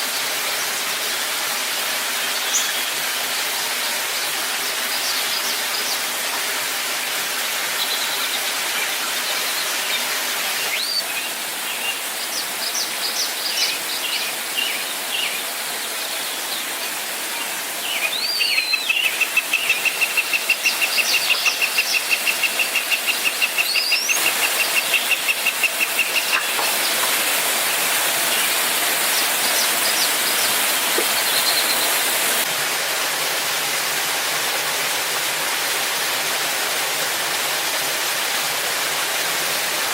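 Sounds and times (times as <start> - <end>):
waterfall rushing: 0.0 - 39.9
birds chirping: 7.8 - 27.4.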